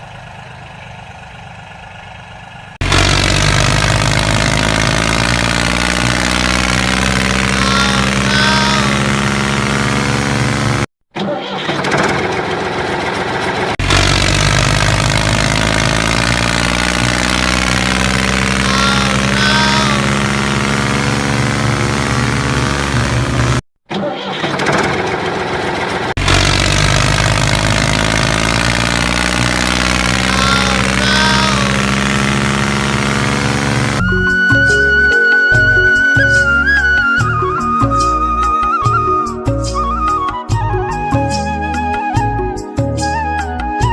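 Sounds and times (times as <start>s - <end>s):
tractor engine running: 0.0s - 23.6s, 24.4s - 34.9s.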